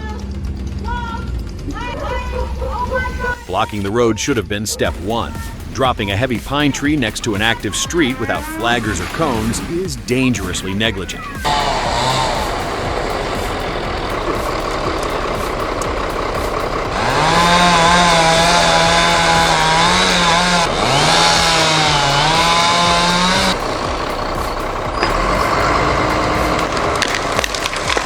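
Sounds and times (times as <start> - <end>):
outdoor background noise: 0.0 - 28.0
sharp cracks: 5.5 - 28.0
chainsaw running at high revs: 11.4 - 28.0.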